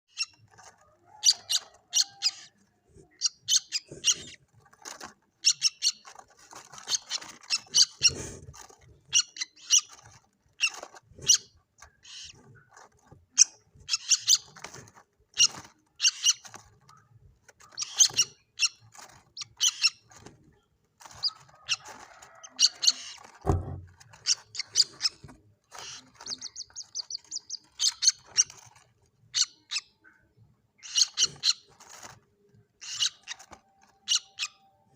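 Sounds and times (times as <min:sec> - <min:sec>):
bird chicks chirping: 0:00.1 - 0:34.9
low thud: 0:23.5 - 0:23.9.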